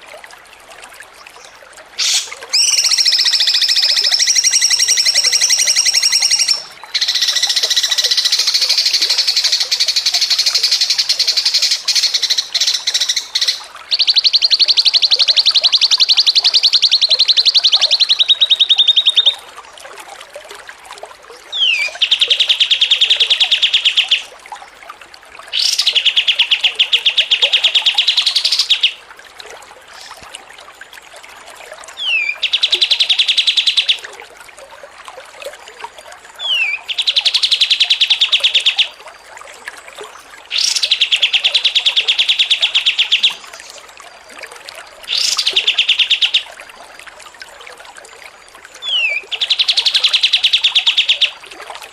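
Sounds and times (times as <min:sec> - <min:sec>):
songbird buzzy trills: 0:02.0 - 0:19.4, 0:40.0 - 0:46.6.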